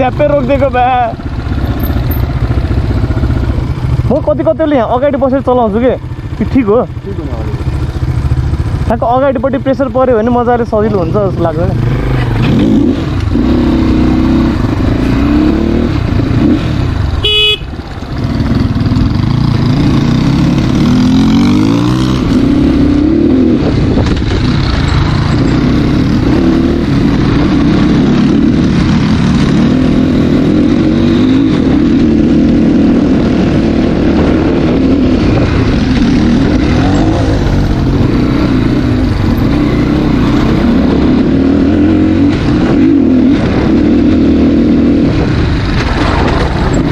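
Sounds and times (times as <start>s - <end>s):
dirt bike engine revving: 10.0s - 46.9s
short horn beep: 17.2s - 17.7s.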